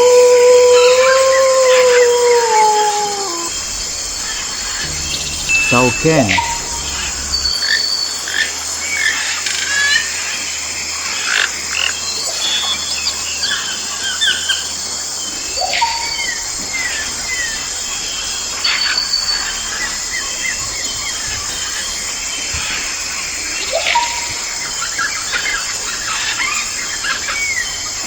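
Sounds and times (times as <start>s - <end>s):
insects chorus: 1.2s - 7.7s.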